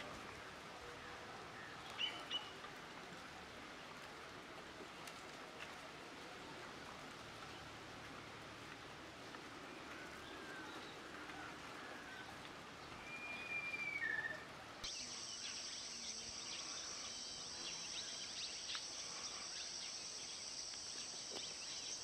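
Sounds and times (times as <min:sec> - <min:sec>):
high-pitched insect drone: 0:14.9 - 0:22.0.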